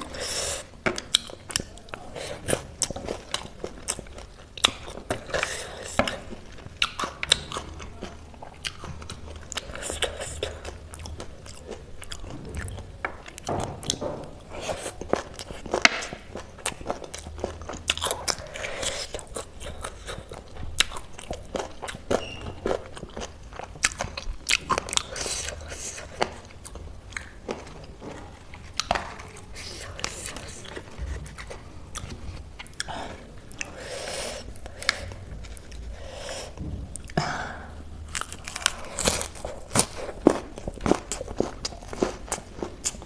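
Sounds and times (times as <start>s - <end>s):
person crunching crisp food: 38.0s - 43.0s.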